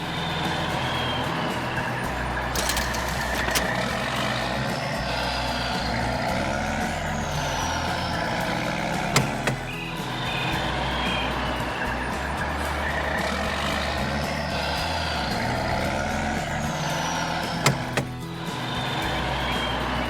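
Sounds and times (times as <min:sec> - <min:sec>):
heavy truck engine running: 0:00.0 - 0:20.0
sharp clicks: 0:02.6 - 0:03.9, 0:09.2 - 0:09.8, 0:17.4 - 0:18.3.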